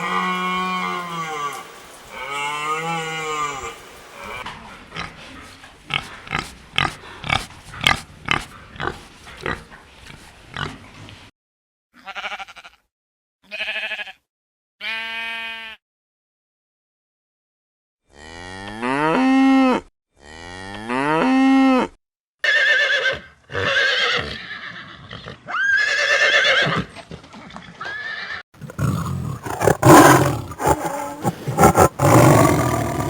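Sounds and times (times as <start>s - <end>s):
cow mooing: 28.6s - 33.0s
short animal grunts: 28.6s - 33.0s.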